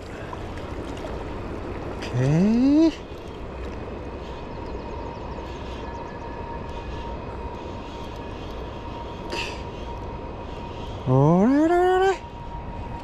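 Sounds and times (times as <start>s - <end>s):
rushing river water: 0.0s - 4.5s.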